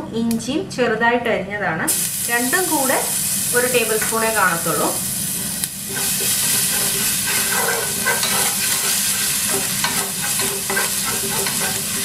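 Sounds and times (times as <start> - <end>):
frying hiss in a pan: 1.9 - 12.0
spatula scraping a pan: 5.8 - 12.0.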